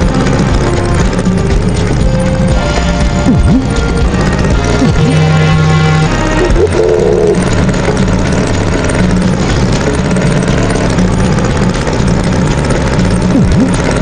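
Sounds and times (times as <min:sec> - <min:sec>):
tractor engine rumbling: 0:00.0 - 0:14.0.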